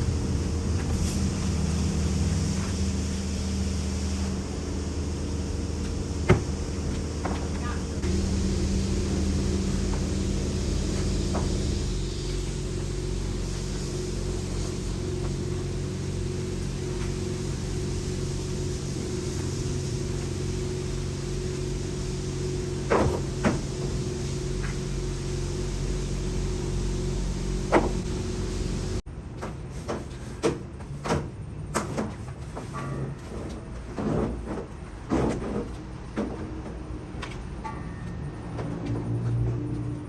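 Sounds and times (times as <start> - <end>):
engine running: 0.0 - 29.1.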